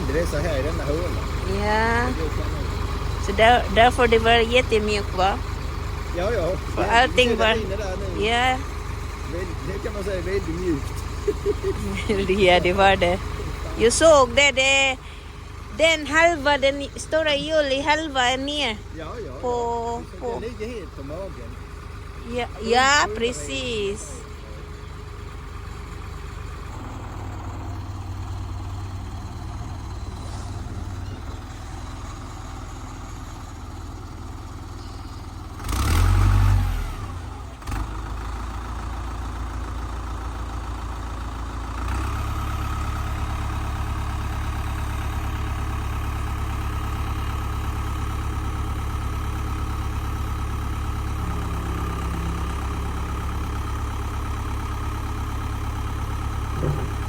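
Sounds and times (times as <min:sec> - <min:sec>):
loud rumble: 0:00.0 - 0:32.8, 0:56.4 - 0:57.0
tractor engine running: 0:00.0 - 0:57.0.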